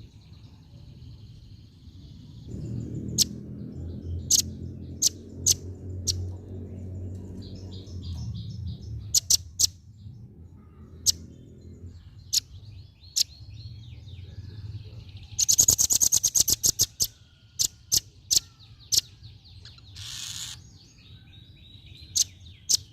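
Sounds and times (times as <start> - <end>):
low hum: 2.0 - 9.2
fast rattling bird trill: 2.4 - 6.3, 7.5 - 9.8, 15.3 - 20.8.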